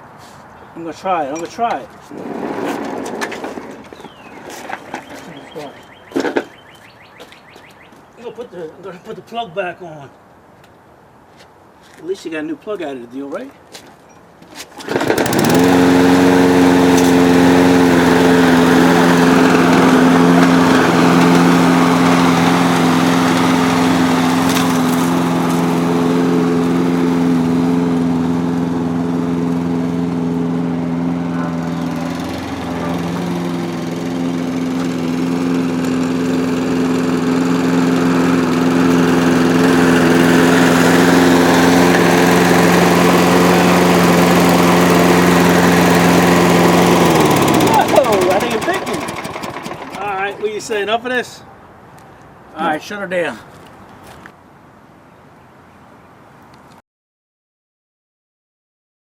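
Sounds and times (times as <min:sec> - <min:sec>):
lawn mower engine running: 0:01.1 - 0:07.0, 0:14.8 - 0:51.1.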